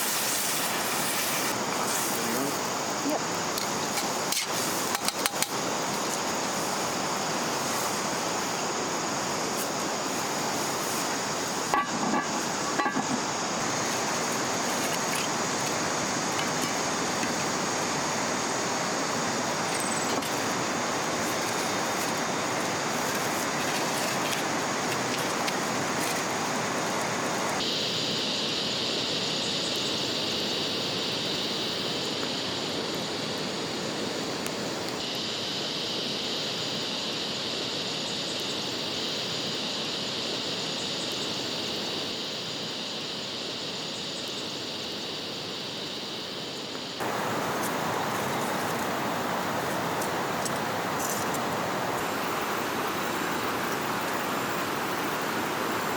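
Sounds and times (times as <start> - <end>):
river water rushing: 1.4 - 27.6, 47.0 - 55.9.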